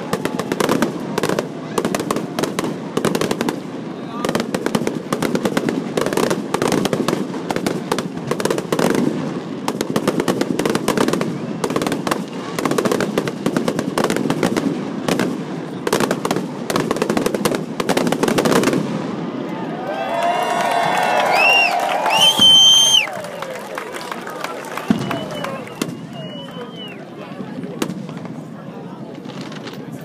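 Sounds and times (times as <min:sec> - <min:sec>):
fireworks bursting with bangs and crackles: 0:00.0 - 0:19.6, 0:20.2 - 0:30.0.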